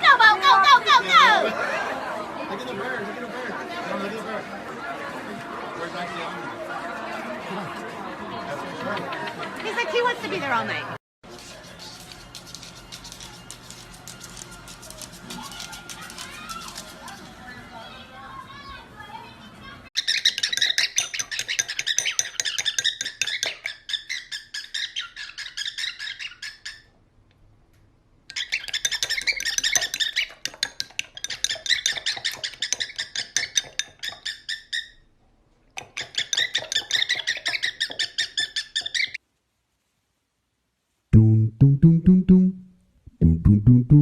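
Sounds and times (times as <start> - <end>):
parrot chirping and squawking: 20.0 - 26.9, 28.3 - 35.1, 35.8 - 39.2.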